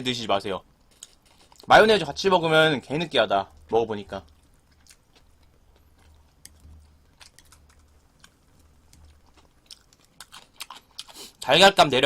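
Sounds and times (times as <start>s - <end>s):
low steady hum: 0.0s - 12.0s
faint chewing: 0.8s - 1.7s, 3.5s - 11.5s.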